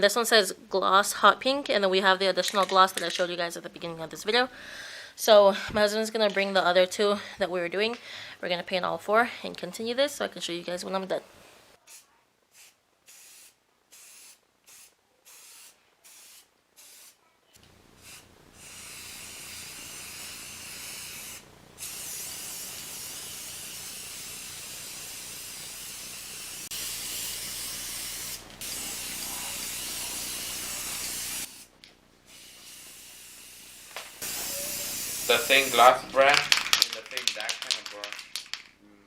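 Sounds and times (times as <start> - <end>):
spray paint can hissing: 11.9 - 17.2, 18.0 - 31.7, 32.3 - 38.7.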